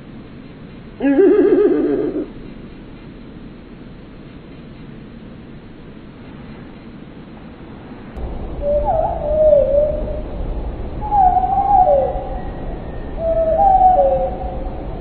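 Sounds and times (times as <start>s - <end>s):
steady low rumble: 0.0s - 15.0s
bird calling in whistled phrases: 8.6s - 10.3s, 11.0s - 15.0s.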